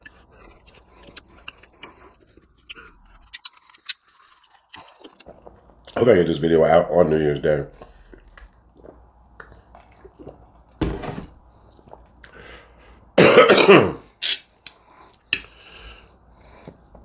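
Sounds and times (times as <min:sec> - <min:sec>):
man coughing: 0:13.2 - 0:14.4.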